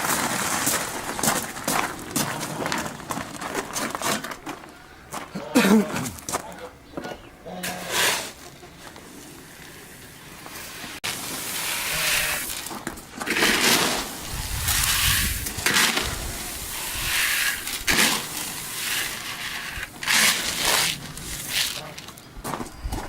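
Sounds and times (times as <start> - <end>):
dry grain pouring: 7.7 - 22.2.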